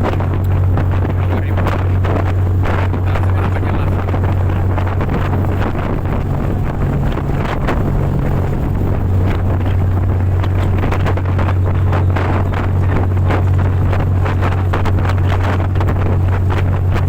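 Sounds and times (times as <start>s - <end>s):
boat engine drone: 0.0s - 17.0s
water rushing: 0.0s - 17.0s
wind buffeting microphone: 0.0s - 17.0s.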